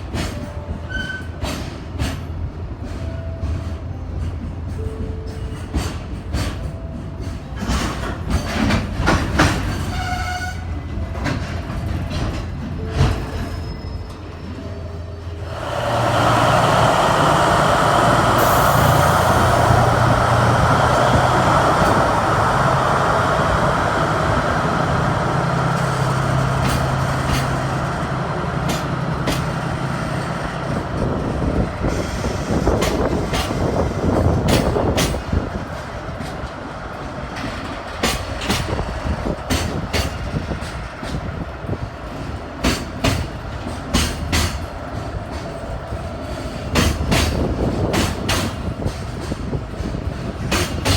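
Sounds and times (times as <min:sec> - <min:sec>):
freight train low drone: 0:00.0 - 0:50.9
wheels clicking over rail joints: 0:20.0 - 0:50.9.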